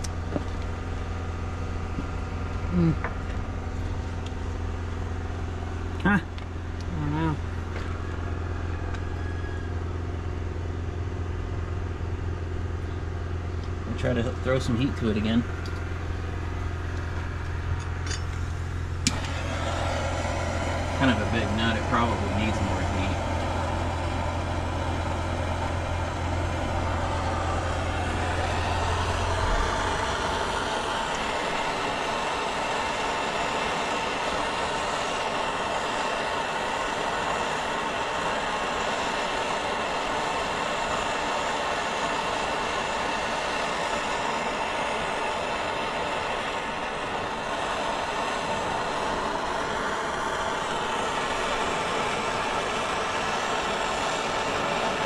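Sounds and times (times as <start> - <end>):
heating torch hissing: 13.9 - 55.0.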